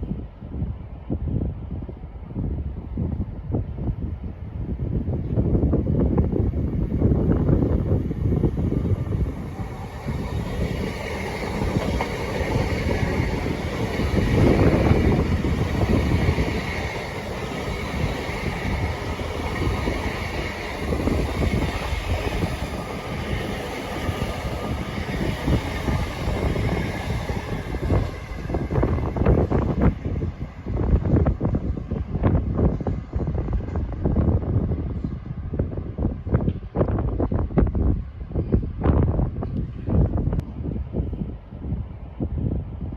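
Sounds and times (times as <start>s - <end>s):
train wheels rumbling on rails: 0.0s - 42.9s.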